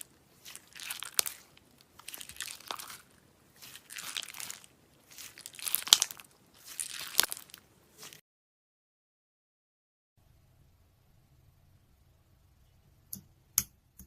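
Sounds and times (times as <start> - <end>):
slime squeezed with crackly pops: 0.4 - 8.2.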